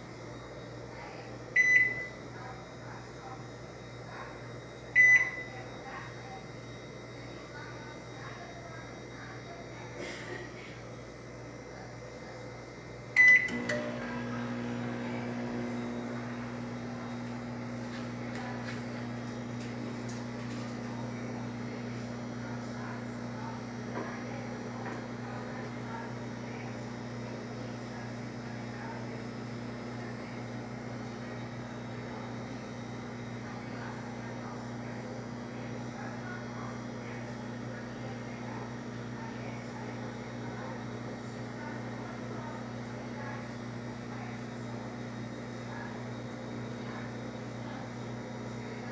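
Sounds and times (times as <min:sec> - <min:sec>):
microwave beep: 0:00.0 - 0:09.8, 0:13.1 - 0:48.9
microwave oven humming: 0:00.0 - 0:48.9
microwave click: 0:13.2 - 0:17.5.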